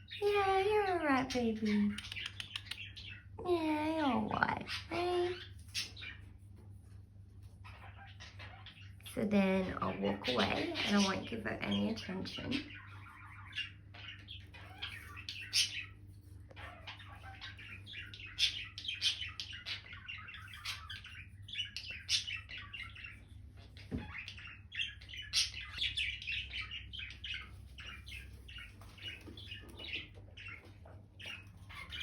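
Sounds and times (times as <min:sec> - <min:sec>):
parrot chattering: 0:00.0 - 0:06.0.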